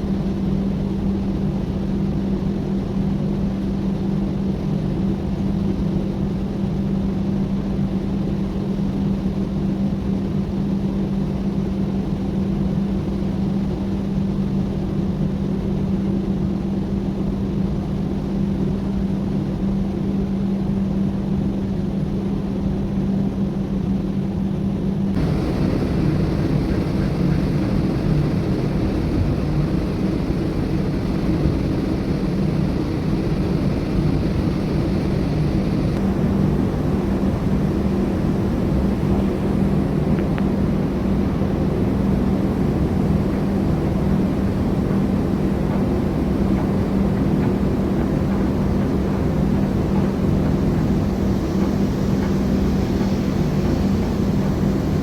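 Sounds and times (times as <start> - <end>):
ship engine droning: 24.9 - 55.0.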